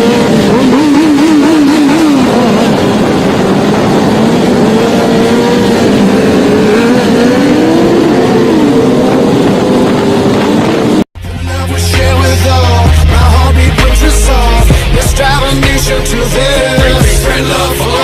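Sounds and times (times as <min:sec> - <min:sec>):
motorcycle engines revving: 0:00.0 - 0:11.1
wind: 0:00.0 - 0:11.1
traffic: 0:00.0 - 0:11.2.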